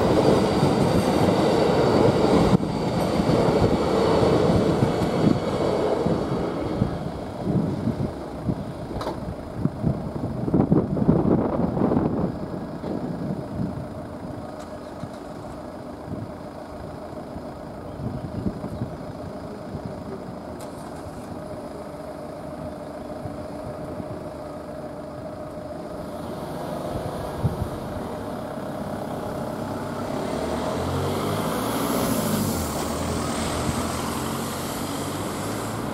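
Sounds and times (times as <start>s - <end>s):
vehicle engine accelerating: 25.8s - 35.9s.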